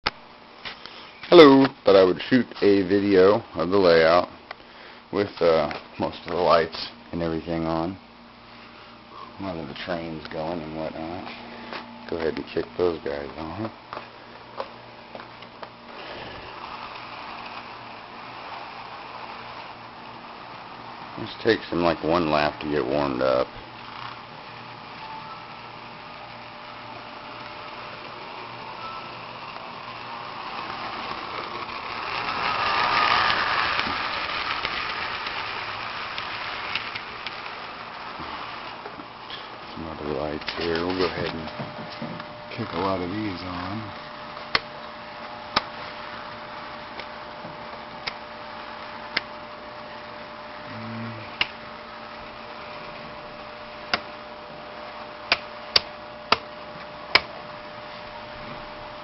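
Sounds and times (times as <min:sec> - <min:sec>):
model trains whirring and rattling: 0:00.6 - 0:50.6, 0:51.2 - 0:59.0
clicks of model train: 0:30.6 - 0:37.6.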